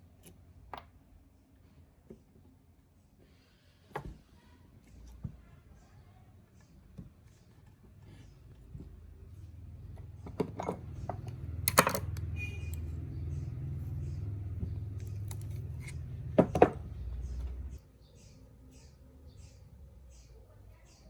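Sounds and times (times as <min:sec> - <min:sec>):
low steady hum: 0:00.0 - 0:21.0
hard objects clicking and clinking: 0:10.3 - 0:12.8.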